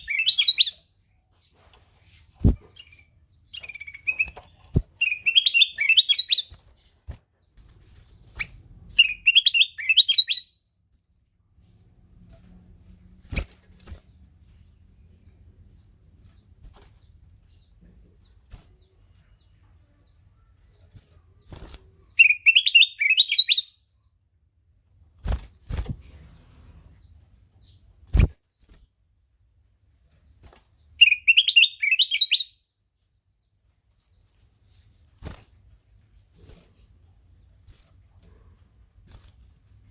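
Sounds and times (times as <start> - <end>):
bulbul singing warbled phrases: 0.0 - 0.8, 2.4 - 6.6, 8.4 - 10.5, 22.0 - 23.7, 31.0 - 32.5.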